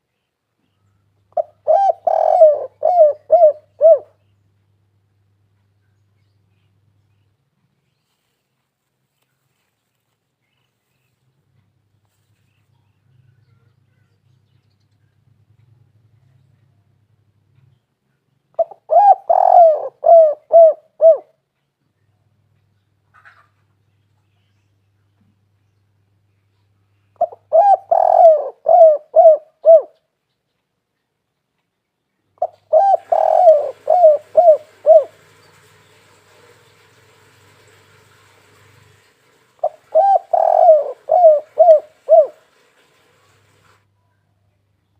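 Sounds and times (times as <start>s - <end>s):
dove cooing: 1.3s - 4.2s, 18.6s - 21.4s, 27.2s - 30.0s, 32.4s - 37.8s, 39.5s - 43.0s
small birds chirping: 5.6s - 20.7s, 21.5s - 37.8s.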